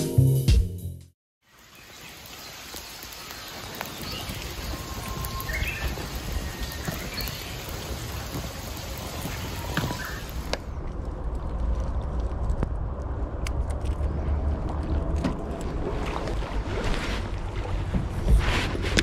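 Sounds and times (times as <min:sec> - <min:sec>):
small birds chirping: 0:01.5 - 0:10.5
steady rushing hiss: 0:01.5 - 0:10.7.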